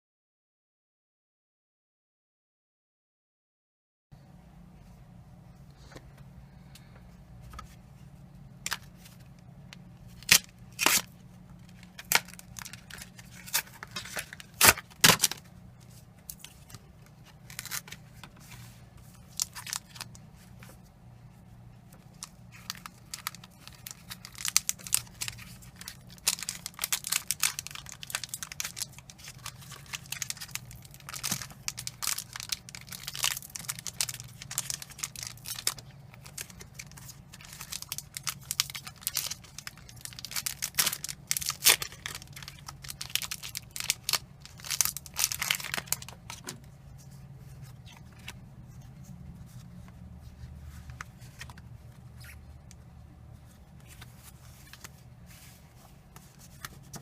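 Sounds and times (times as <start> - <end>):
foil wrapper crinkling: 10.0 - 20.8, 21.9 - 48.5
foil pack tearing: 10.1 - 15.4, 22.2 - 46.5.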